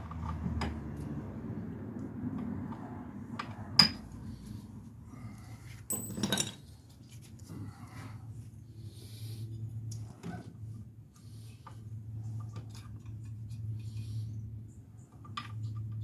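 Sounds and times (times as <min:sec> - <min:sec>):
metal tools clinking: 0:05.9 - 0:06.6.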